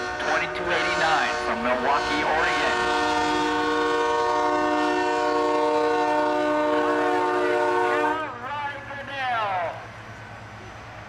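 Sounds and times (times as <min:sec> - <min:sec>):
truck air horn chord: 0:00.0 - 0:08.2.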